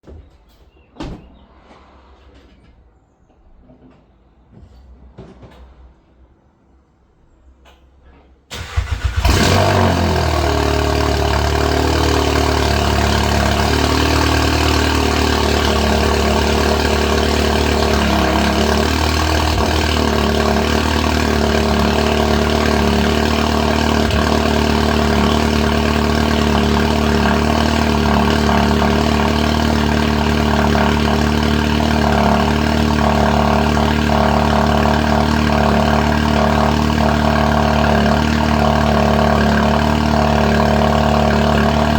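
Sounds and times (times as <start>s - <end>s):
car engine starting and idling: 8.5s - 41.9s.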